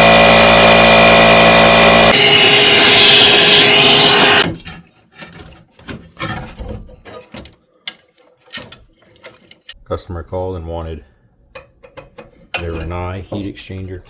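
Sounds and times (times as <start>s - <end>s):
loud rushing noise: 0.0s - 4.4s.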